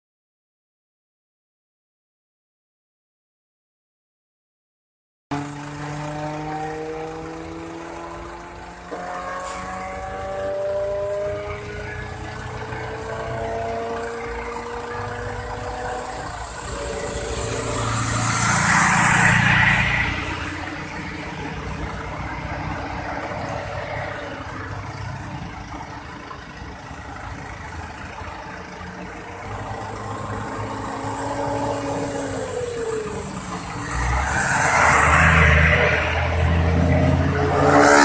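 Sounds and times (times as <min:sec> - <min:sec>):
truck engine running: 0:05.3 - 0:34.3.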